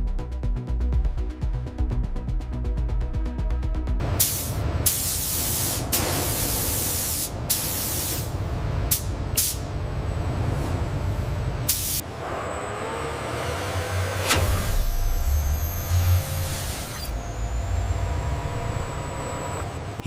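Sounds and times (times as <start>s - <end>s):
music: 0.0s - 4.3s
steady low rumble: 0.0s - 12.0s
hissing spray bursts: 4.2s - 8.3s.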